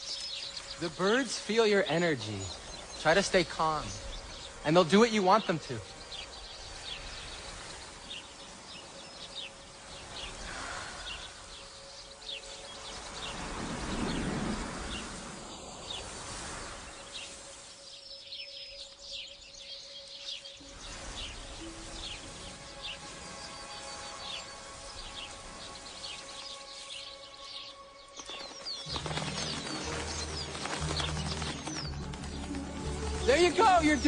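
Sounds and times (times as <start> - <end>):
outdoor hiss: 0.0 - 28.1
birds chirping: 0.0 - 34.0.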